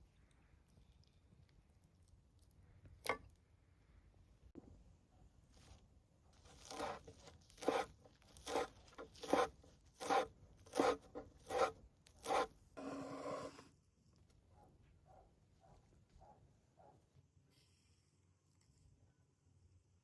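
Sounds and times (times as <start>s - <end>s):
food scraping strokes: 6.4s - 13.7s.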